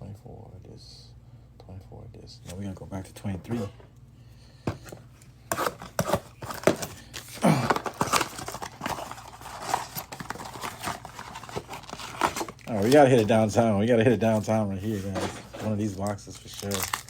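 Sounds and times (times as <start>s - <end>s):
cards being handled: 4.7s - 13.6s, 14.2s - 17.0s
wrappers crinkling and tearing: 5.5s - 13.6s, 14.2s - 17.0s.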